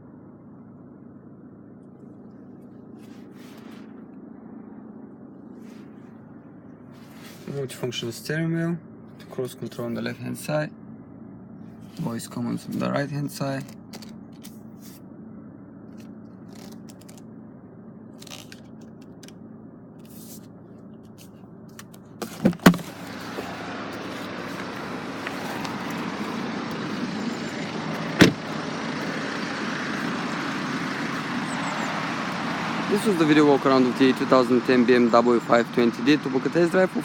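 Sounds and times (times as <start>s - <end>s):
steady low hum: 0.0s - 37.0s
sharp thumps: 28.1s - 28.5s.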